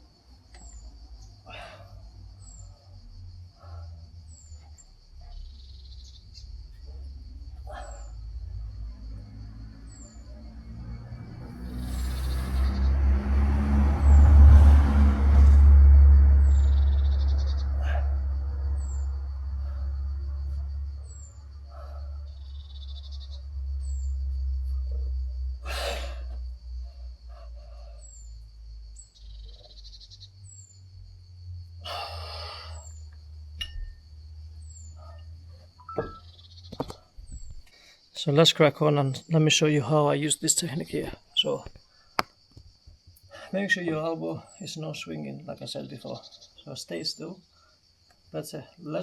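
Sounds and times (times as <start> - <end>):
insect drone: 0.0 - 49.0
bird chirping: 4.3 - 8.2, 16.4 - 18.1, 20.4 - 25.0, 28.0 - 30.9, 32.8 - 38.4
low rumble: 10.2 - 25.7
breathy bursts: 11.4 - 13.2, 25.6 - 28.1, 31.8 - 33.0.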